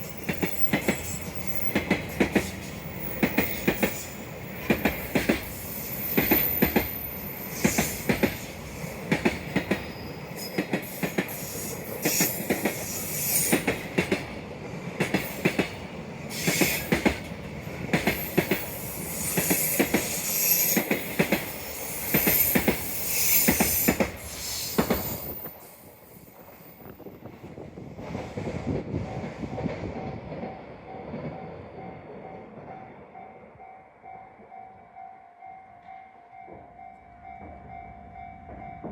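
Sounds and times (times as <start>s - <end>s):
train wheels clacking over rail joints: 0.0s - 14.4s, 15.0s - 25.4s
train rumble: 0.0s - 33.7s, 36.4s - 38.9s.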